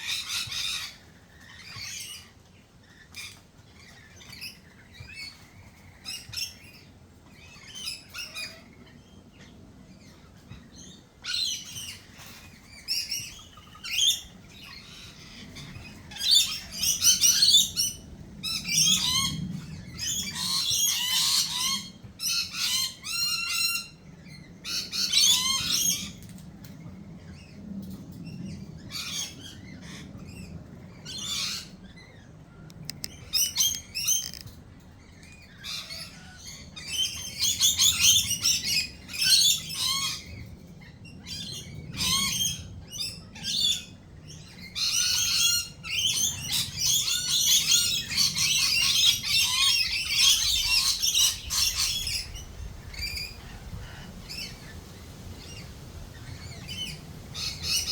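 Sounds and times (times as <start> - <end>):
birds chirping: 32.6 - 34.6.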